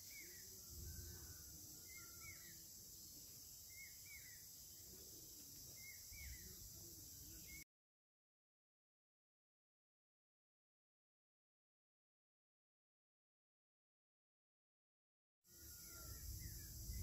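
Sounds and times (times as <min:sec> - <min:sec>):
faint high hiss: 0:00.0 - 0:07.6.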